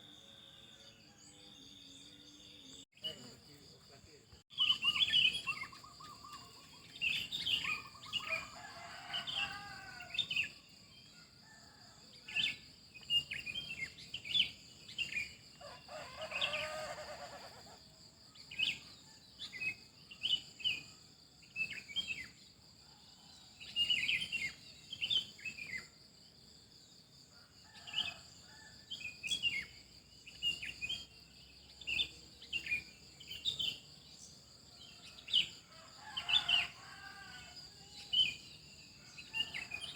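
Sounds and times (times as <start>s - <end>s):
birds chirping and calling: 4.5s - 8.5s.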